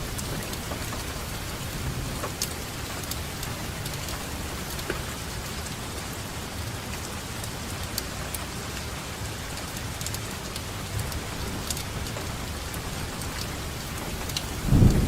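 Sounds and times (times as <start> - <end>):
rain hissing: 14.3 - 15.0.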